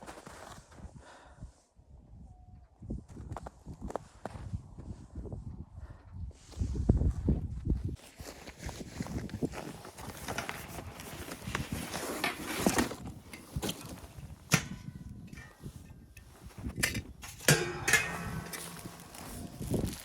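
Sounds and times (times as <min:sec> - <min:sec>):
knocks and scrapes: 0:10.1 - 0:20.0
scraping rattle: 0:17.5 - 0:20.0.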